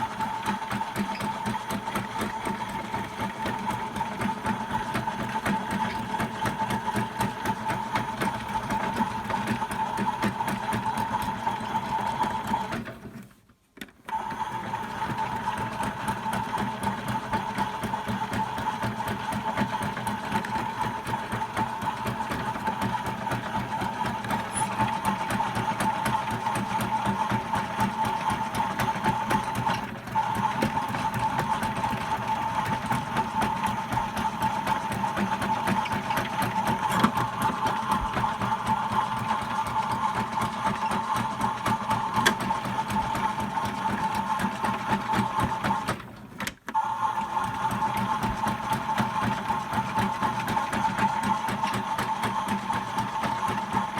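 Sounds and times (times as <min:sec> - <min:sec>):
toy motor whining and rattling: 0:23.3 - 0:26.3.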